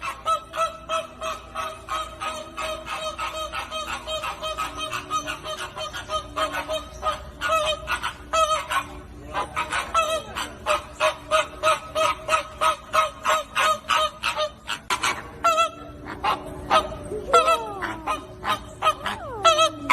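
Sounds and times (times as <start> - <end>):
flamingos honking: 0.0 - 19.9.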